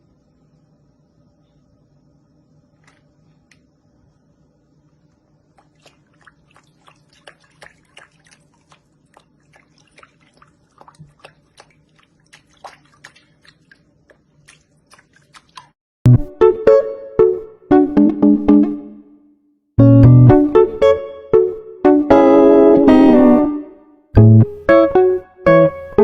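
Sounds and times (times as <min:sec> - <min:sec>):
low steady hum: 0:00.0 - 0:15.7.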